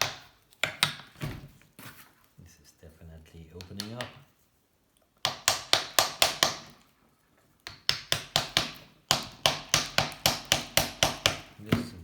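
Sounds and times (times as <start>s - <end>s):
hammer knocking on wooden block: 5.2s - 6.7s, 7.7s - 12.0s.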